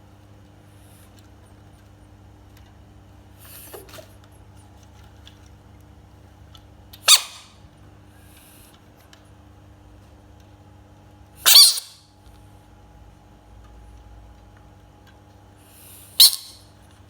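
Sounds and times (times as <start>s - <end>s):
frog screaming: 7.1s - 7.5s, 11.5s - 12.0s, 16.2s - 16.6s.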